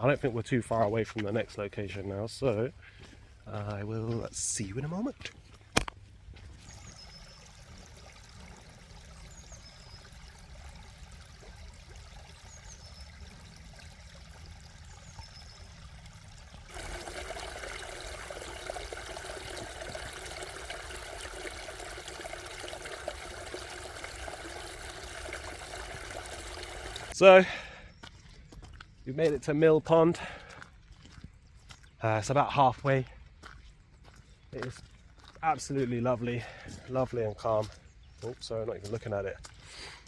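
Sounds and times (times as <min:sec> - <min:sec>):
water pouring: 0:06.5 - 0:27.2.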